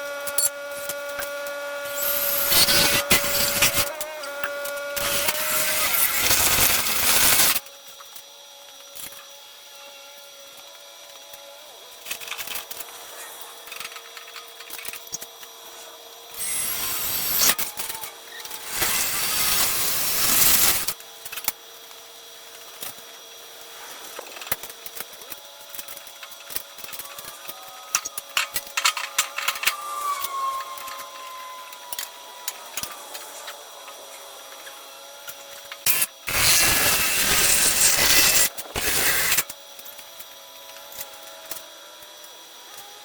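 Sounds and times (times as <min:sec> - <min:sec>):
power tool running: 0:00.0 - 0:07.7, 0:16.3 - 0:21.0, 0:25.4 - 0:39.6.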